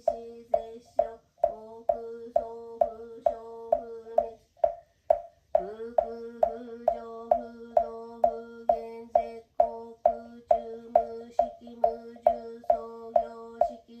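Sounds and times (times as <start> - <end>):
monotone chanting: 0.0 - 14.0
wooden fish knocks: 4.2 - 5.7.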